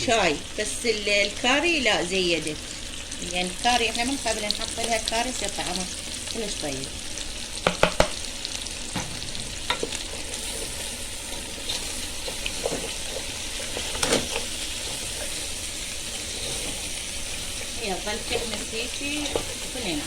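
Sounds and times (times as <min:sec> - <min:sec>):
meat and onions sizzling: 0:00.0 - 0:20.0
utensil knocking and scraping pot: 0:07.6 - 0:08.2, 0:11.4 - 0:20.0.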